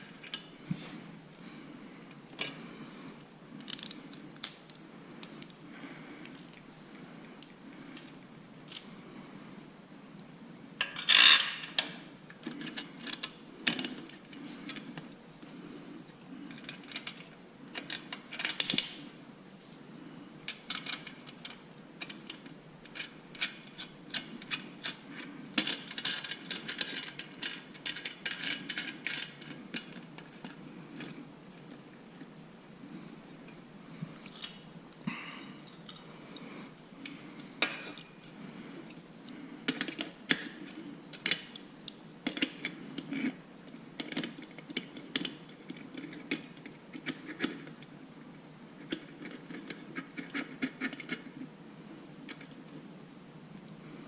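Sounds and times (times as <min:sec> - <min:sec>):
metal tools clinking and scraping: 0:34.2 - 0:34.7.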